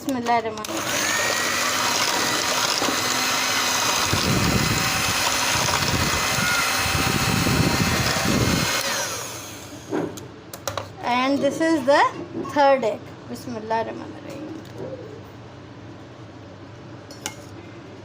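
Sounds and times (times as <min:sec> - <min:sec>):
electric mixer whisking batter: 0:00.6 - 0:09.9
batter churning: 0:00.8 - 0:09.8.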